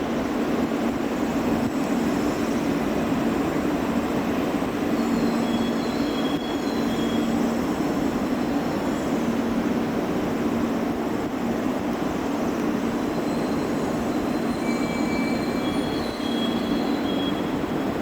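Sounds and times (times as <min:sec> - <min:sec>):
train hum and rumble: 0:00.0 - 0:18.0
faint high-pitched squeals: 0:13.1 - 0:17.8.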